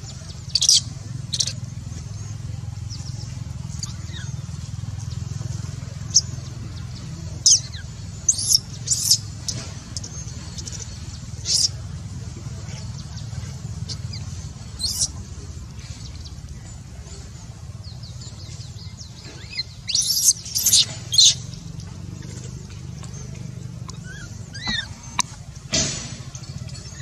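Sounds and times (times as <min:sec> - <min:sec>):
animal squeals and chirps: 0:07.4 - 0:09.6, 0:11.3 - 0:11.8, 0:13.8 - 0:15.2, 0:19.4 - 0:21.4, 0:23.9 - 0:25.2.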